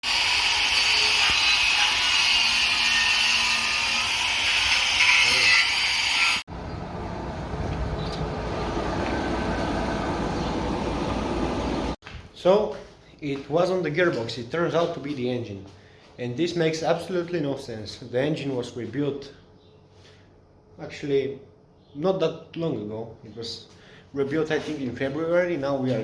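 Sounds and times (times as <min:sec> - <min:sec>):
loud hissy machinery noise: 0:00.0 - 0:06.4
machinery low rumble: 0:06.5 - 0:12.0.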